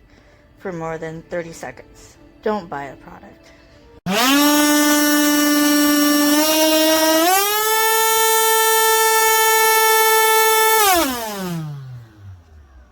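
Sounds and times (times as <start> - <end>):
handheld vacuum motor whining: 4.1 - 12.9.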